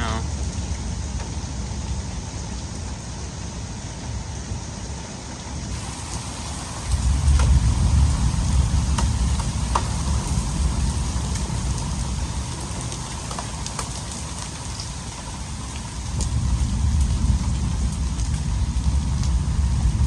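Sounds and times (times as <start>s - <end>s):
heavy rain falling: 0.0s - 20.0s
hailstones ticking: 5.7s - 20.0s
uneven low rumble: 6.1s - 12.6s.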